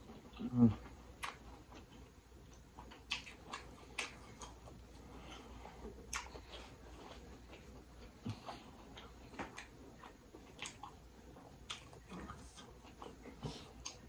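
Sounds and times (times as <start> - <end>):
low steady hum: 0.0 - 14.0
wet mouth clicks and lip smacks: 1.2 - 4.8, 5.9 - 6.6, 7.5 - 11.0, 11.6 - 13.2.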